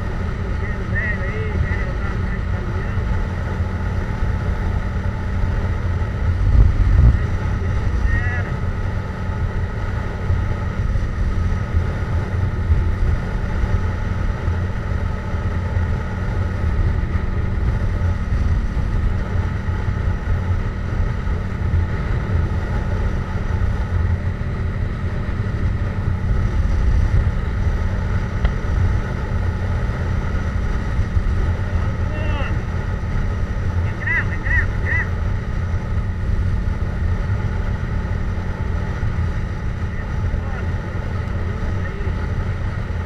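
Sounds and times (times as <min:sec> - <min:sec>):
motorcycle engine cruising: 0:00.0 - 0:43.0
road noise rumble: 0:00.0 - 0:43.0.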